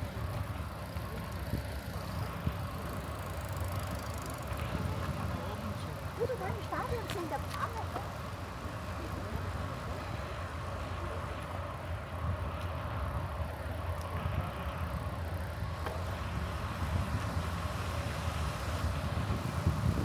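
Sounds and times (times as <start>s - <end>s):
bicycle tyre noise: 0.0s - 20.0s
wind noise: 16.3s - 20.0s.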